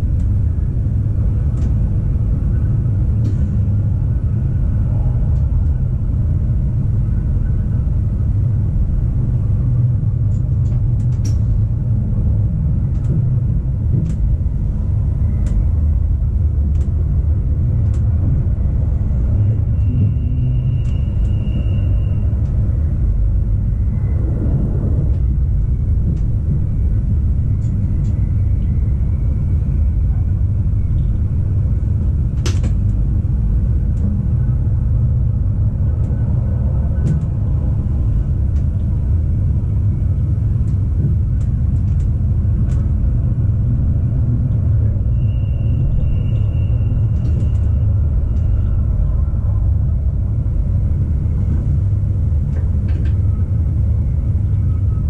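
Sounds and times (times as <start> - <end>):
electric train rumbling: 0.0 - 55.0.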